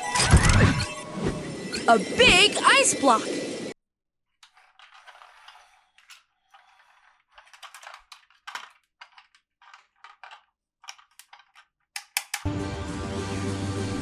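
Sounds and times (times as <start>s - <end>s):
toy packaging crinkling: 4.4s - 12.5s.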